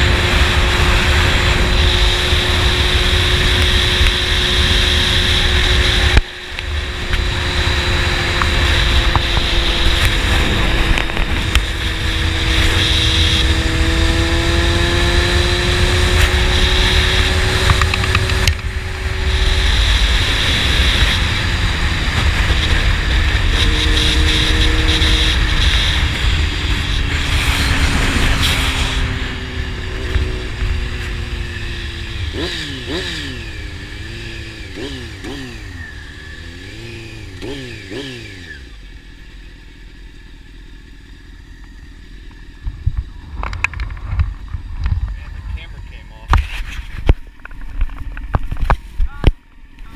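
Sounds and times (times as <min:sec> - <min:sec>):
motorcycle engine: 0:00.0 - 0:49.9
wind rush: 0:06.8 - 0:32.3.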